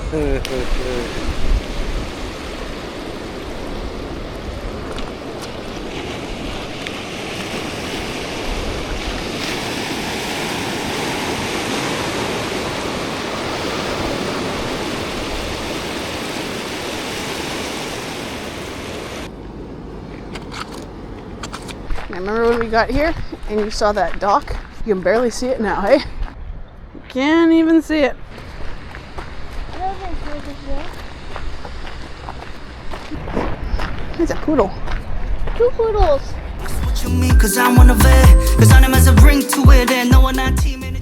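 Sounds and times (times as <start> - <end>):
sea waves washing onto shore: 0.0 - 20.1.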